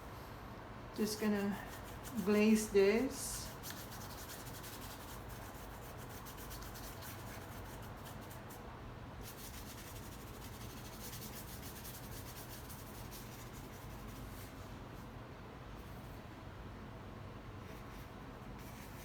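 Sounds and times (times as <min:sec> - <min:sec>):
paintbrush brushing: 0:01.0 - 0:02.7, 0:03.4 - 0:08.5, 0:09.2 - 0:14.7, 0:17.6 - 0:19.0.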